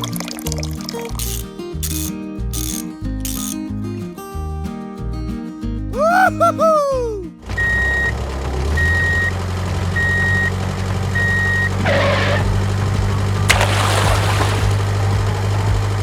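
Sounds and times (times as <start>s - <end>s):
reversing alarm beeps: 8.8s - 9.4s, 11.2s - 11.7s.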